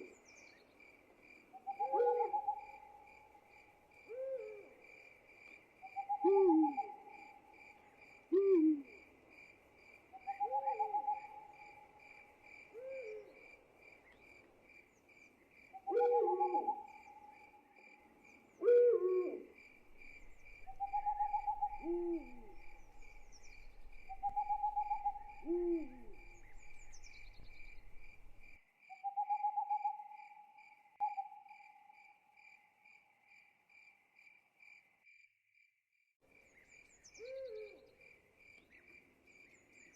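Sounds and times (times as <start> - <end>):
crickets chirping: 0.0 - 35.7
owl hooting: 1.6 - 3.0, 5.9 - 7.3, 8.3 - 9.0, 10.2 - 11.9, 15.8 - 17.4, 18.6 - 30.4, 37.2 - 37.8.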